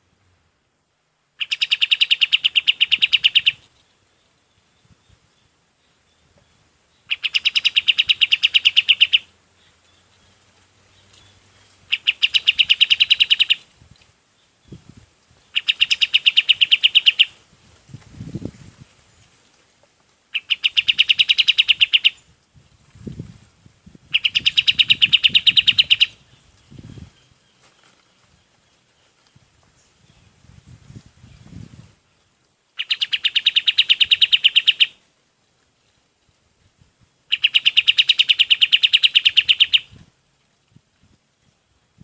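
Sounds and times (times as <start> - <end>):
bird rattling call: 1.4 - 3.6, 7.1 - 9.3, 11.9 - 13.7, 15.5 - 17.4, 20.3 - 22.2, 24.1 - 26.2, 32.8 - 35.0, 37.3 - 40.0.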